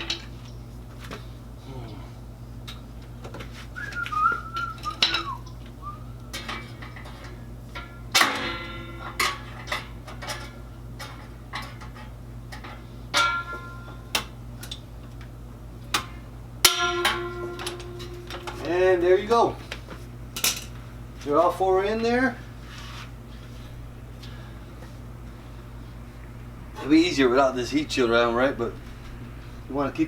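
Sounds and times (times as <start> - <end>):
wavering whistle-like tone: 3.8 - 6.1
ringing metallic knocks: 7.8 - 9.7, 13.1 - 14.3, 16.6 - 19.0
metal parts clinking: 16.7 - 18.8.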